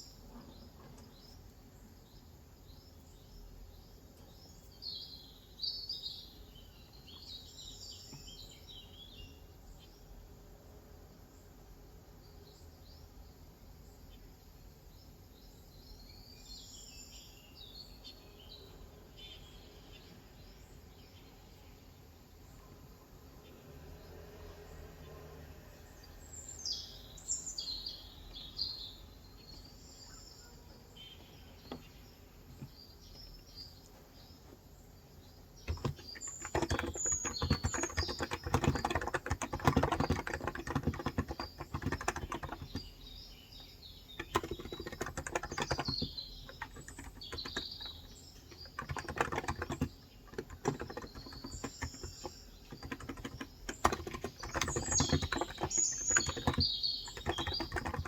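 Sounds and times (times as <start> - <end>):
birds chirping: 0.0 - 10.1, 25.9 - 58.0
fast typing on keyboard: 35.6 - 43.1, 44.0 - 58.0.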